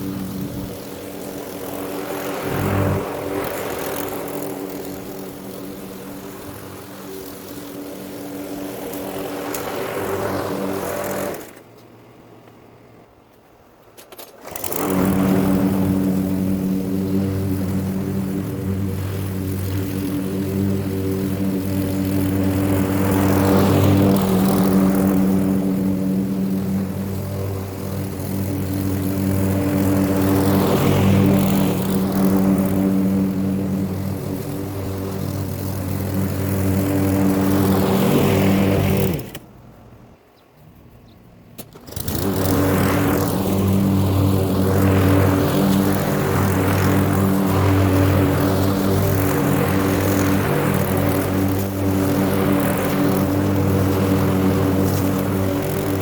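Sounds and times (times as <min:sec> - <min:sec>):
lawn mower engine running: 0:00.0 - 0:13.1, 0:13.8 - 0:39.5, 0:41.4 - 0:56.0.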